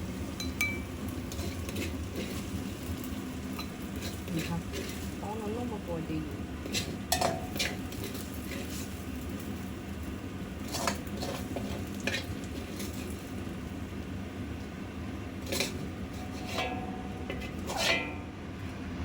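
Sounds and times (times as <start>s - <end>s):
eggplant sizzling in oil: 0.0s - 18.7s
utensil scraping a pan: 1.2s - 5.5s, 6.6s - 9.0s, 10.6s - 13.3s, 15.4s - 18.4s.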